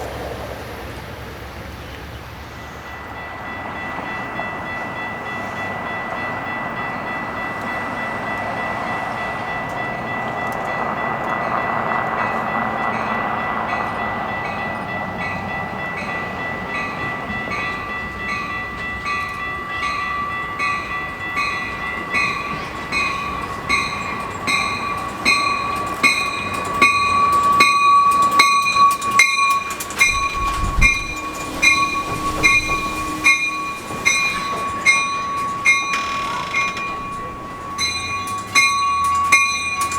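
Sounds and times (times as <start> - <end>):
train passing: 0.0 - 39.9
train wheels clicking over rail joints: 0.0 - 39.9
steady high tone: 19.4 - 39.9.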